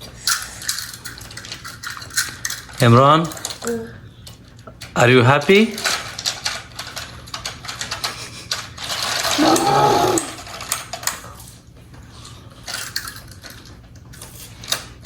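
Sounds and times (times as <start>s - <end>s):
child's wordless vocal sound: 9.4s - 10.4s.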